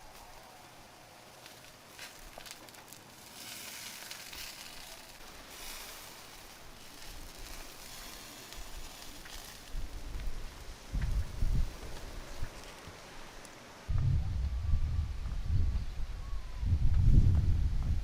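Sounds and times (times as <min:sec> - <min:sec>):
food sizzling in a pan: 0:00.2 - 0:12.7.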